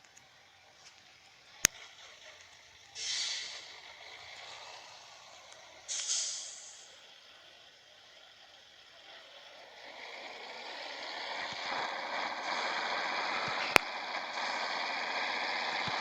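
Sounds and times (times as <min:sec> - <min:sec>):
truck driving noise: 0:00.0 - 0:16.0
sharp click: 0:05.9 - 0:06.8.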